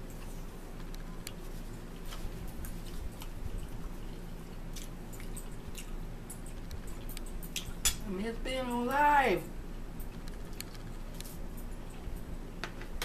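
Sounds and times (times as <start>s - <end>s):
people chewing food: 0.0s - 7.8s.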